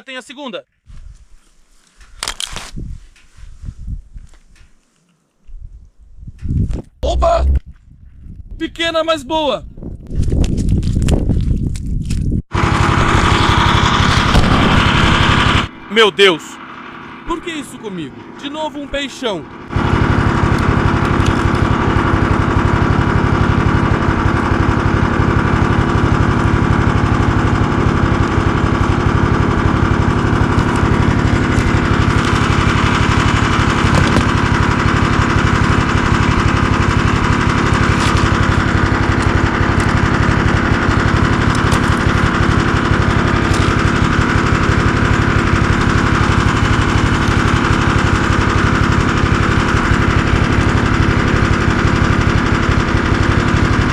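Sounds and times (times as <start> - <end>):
snowmobile engine running: 12.5 - 53.9.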